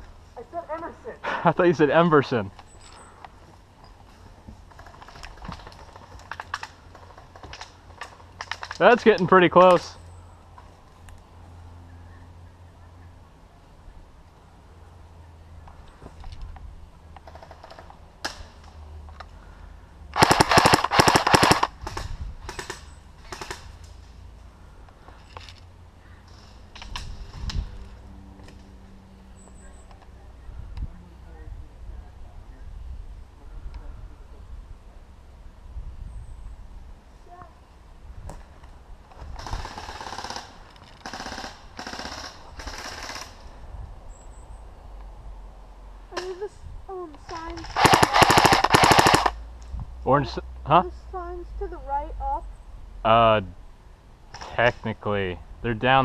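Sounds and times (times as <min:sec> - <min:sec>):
airsoft guns firing bursts: 0:20.2 - 0:23.7, 0:47.6 - 0:49.4.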